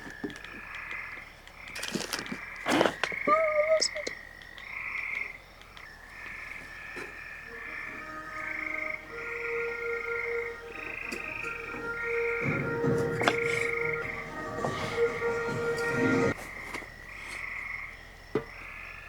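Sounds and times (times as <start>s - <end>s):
frogs trilling: 0.0s - 14.0s.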